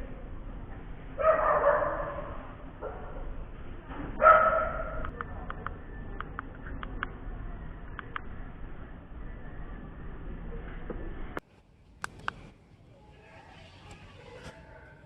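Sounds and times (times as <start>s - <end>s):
dog barking: 1.2s - 3.4s, 4.2s - 5.1s.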